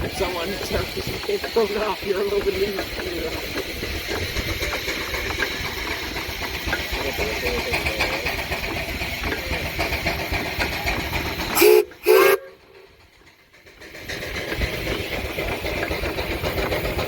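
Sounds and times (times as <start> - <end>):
steam whistle blasts: 11.6 - 12.6.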